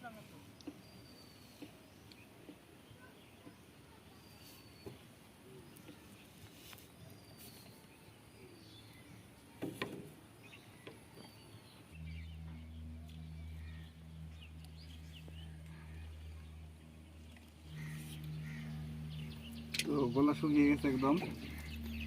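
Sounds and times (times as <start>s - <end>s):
small birds chirping: 0.0s - 22.0s
low motor hum: 10.6s - 22.0s.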